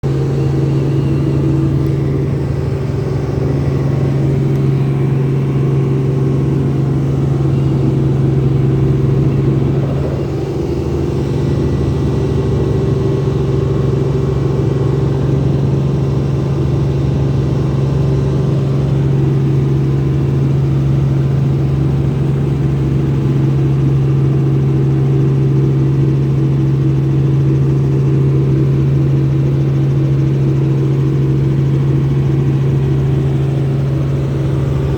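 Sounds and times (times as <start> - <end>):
helicopter engine and rotor drone: 0.0 - 34.9.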